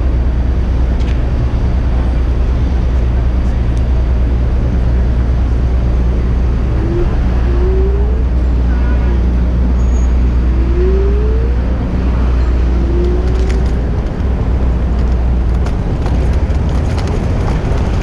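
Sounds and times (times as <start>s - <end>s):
city traffic: 0.0s - 18.0s
wind buffeting microphone: 12.0s - 18.0s.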